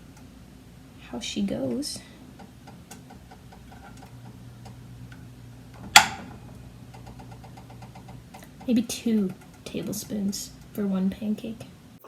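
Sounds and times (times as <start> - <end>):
low steady hum: 0.0 - 12.0
faint rapid ticking: 6.5 - 11.7.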